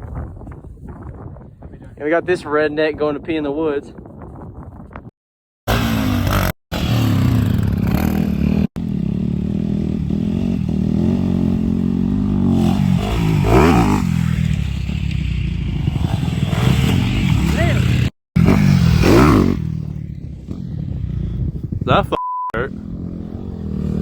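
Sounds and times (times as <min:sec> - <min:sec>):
motorcycle engine revving: 0:05.7 - 0:21.9, 0:22.6 - 0:24.0.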